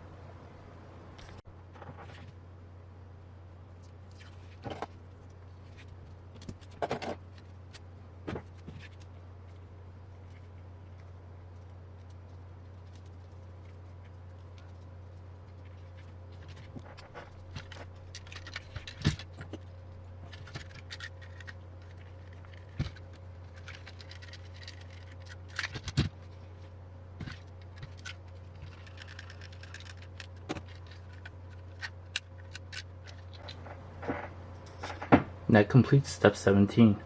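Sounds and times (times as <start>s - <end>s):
steady low hum: 0.0s - 37.0s
plastic parts clicking and scraping: 4.1s - 9.6s, 15.5s - 35.2s.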